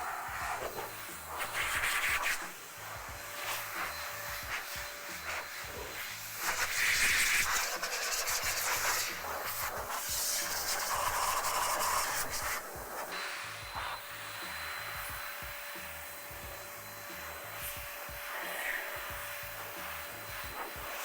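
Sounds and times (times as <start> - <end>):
background music beat: 0.1 - 21.0
cloth wiping car paintwork: 4.5 - 13.0.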